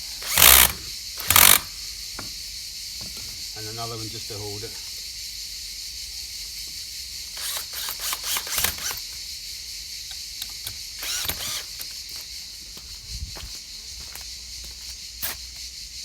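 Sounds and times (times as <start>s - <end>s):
steady high-pitched hiss: 0.0s - 16.0s
timber clattering and knocking: 3.0s - 3.5s.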